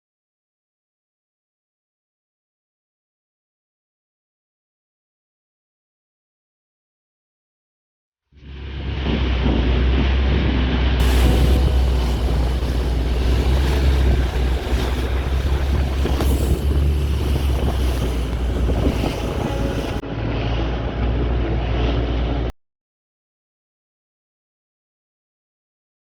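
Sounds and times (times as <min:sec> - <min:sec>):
boat engine droning: 0:11.0 - 0:20.0
wind buffeting microphone: 0:11.0 - 0:20.0.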